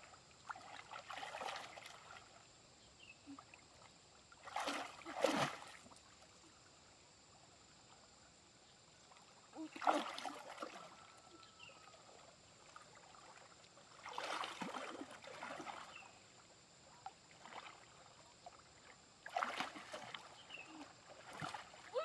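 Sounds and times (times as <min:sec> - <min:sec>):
water splashing in a shallow stream: 0:00.0 - 0:22.0.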